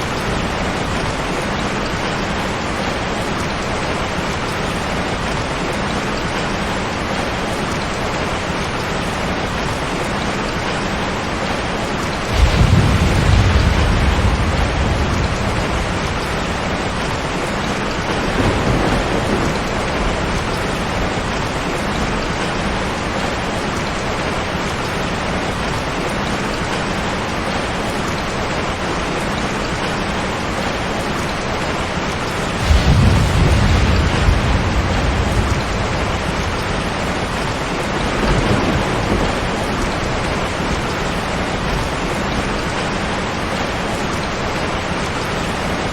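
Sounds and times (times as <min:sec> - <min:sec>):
heavy rain: 0:00.0 - 0:45.9
thunder rolling: 0:12.1 - 0:23.2, 0:32.5 - 0:42.8.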